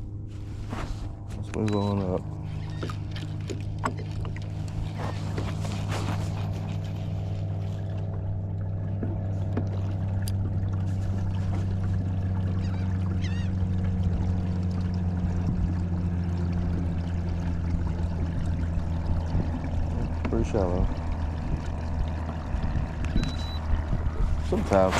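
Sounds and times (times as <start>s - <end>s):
boat motor running: 0.0s - 24.9s.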